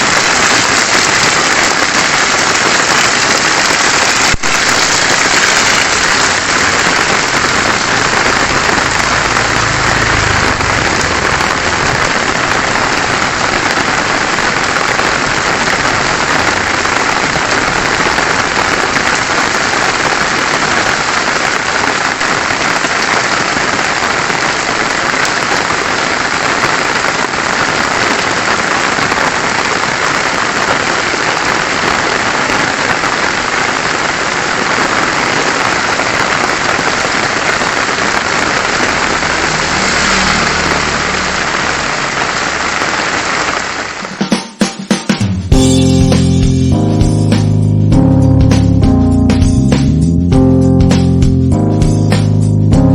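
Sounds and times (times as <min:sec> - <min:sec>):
heavy rain hissing: 0:00.0 - 0:44.3.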